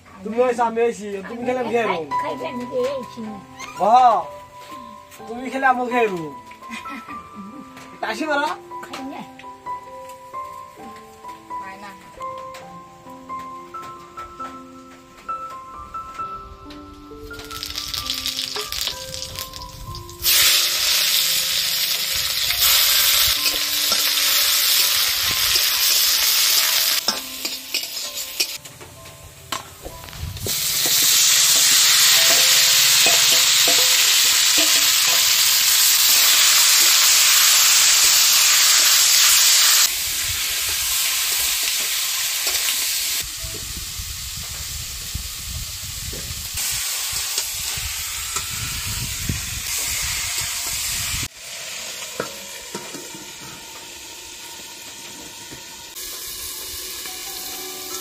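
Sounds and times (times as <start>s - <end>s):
food sizzling in hot oil: 17.2s - 28.6s, 29.5s - 58.0s.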